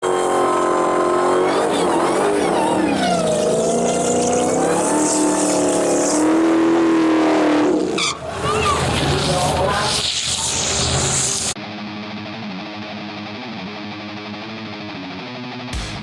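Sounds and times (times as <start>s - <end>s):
car engine revving high: 0.0s - 11.6s.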